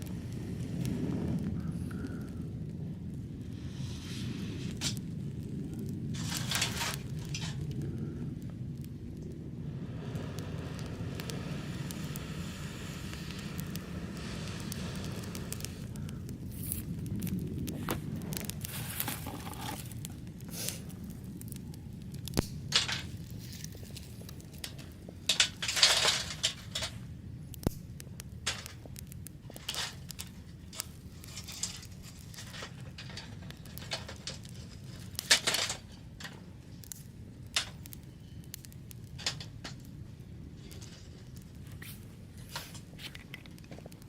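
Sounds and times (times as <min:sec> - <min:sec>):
faint low rumble: 0:00.0 - 0:44.0
rustling scrapes: 0:06.1 - 0:07.6, 0:16.5 - 0:20.9.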